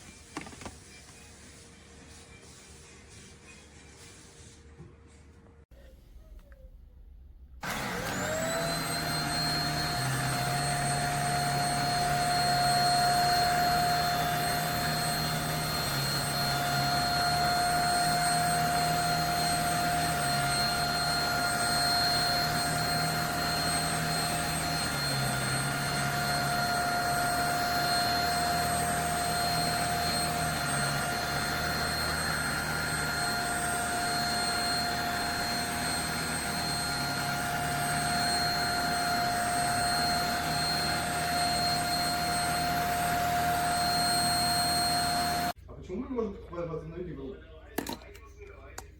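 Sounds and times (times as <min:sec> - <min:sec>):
vacuum motor whine: 0:07.6 - 0:45.6.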